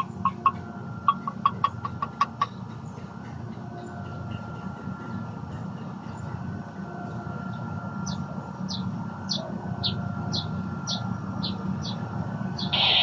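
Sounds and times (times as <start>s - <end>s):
bird chirping: 8.0s - 13.0s.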